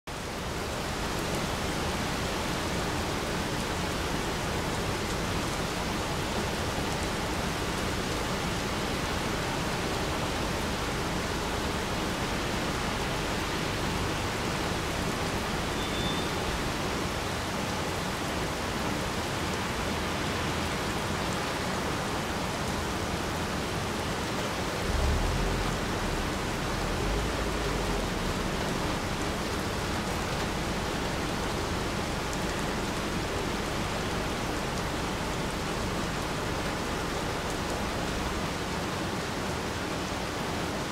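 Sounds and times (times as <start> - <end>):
low rumble: 24.8 - 31.9
rain pattering on rock: 24.8 - 38.7.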